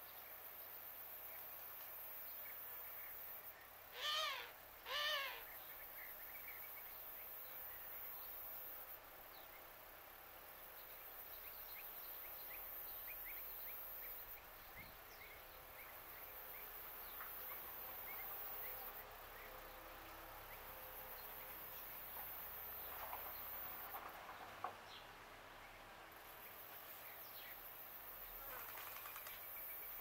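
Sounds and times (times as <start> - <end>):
small birds chirping: 4.0 - 8.4.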